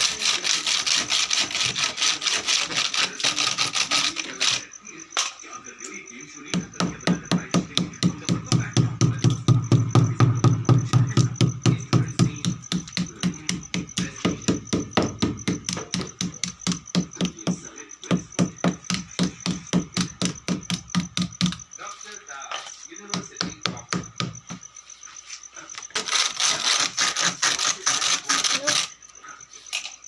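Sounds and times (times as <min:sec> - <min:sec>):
fast regular knocking: 0:06.5 - 0:21.8, 0:23.0 - 0:24.7.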